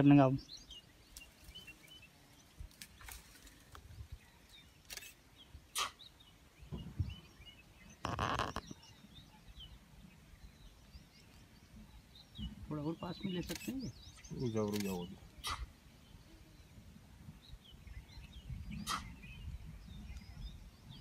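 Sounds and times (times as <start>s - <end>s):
faint birds chirping: 0.0s - 21.0s
sharp clicks: 4.8s - 5.2s, 14.6s - 15.0s.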